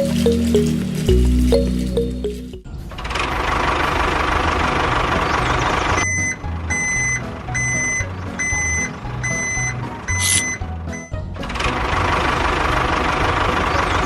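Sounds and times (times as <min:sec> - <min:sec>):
toy reversing beeper: 0:06.0 - 0:11.1.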